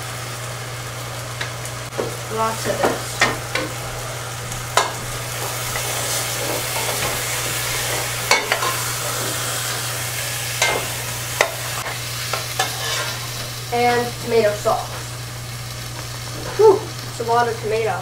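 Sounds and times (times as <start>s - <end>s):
food sizzling in a pot: 0.0s - 18.0s.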